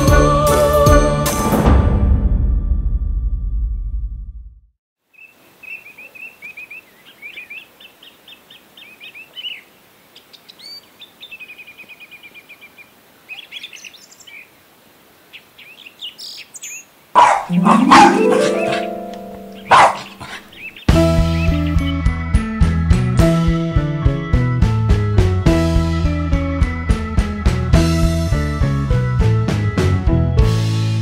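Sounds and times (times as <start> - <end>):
songbirds chirping and trilling: 5.1 - 23.1.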